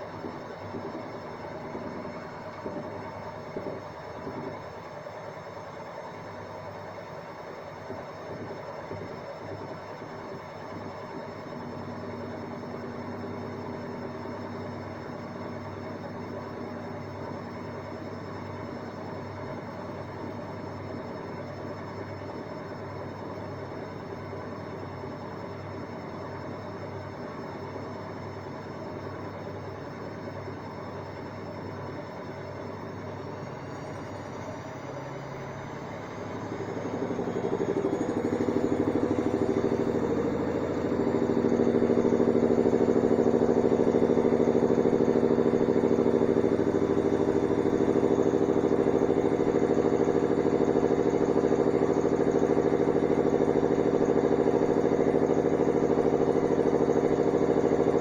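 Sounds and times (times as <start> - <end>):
motor whine: 0.0 - 58.0
washing machine spinning: 29.7 - 58.0.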